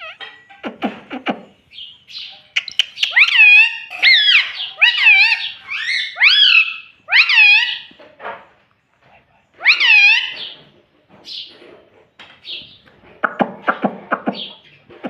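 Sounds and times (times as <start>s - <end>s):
parrot calling loudly: 2.6s - 7.9s, 9.6s - 10.6s.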